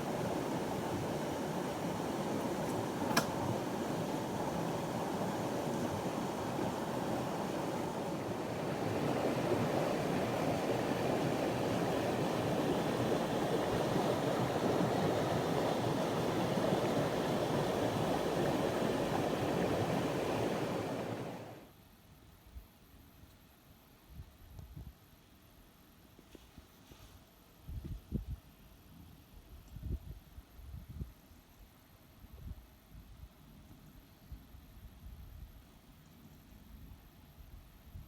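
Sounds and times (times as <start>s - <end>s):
river rushing: 0.0s - 21.6s.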